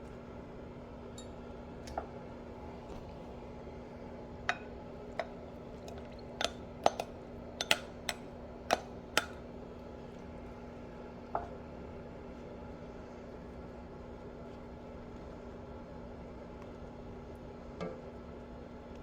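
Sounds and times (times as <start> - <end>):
steady low hum: 0.0 - 19.0
kitchenware clinking: 4.4 - 9.4.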